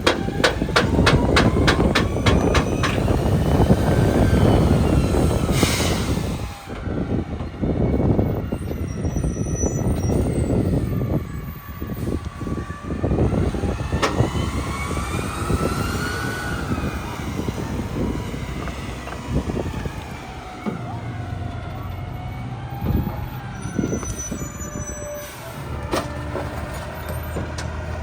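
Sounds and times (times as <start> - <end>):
clatter and knocks: 0.0 - 3.2
garbage truck engine whining: 0.0 - 28.0.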